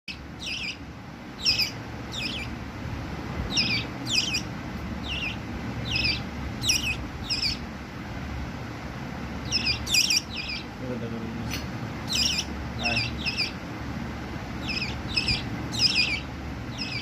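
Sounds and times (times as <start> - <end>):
bird calling: 0.1 - 0.8, 1.4 - 2.6, 3.5 - 7.7, 9.4 - 10.8, 12.0 - 13.6, 14.6 - 17.0.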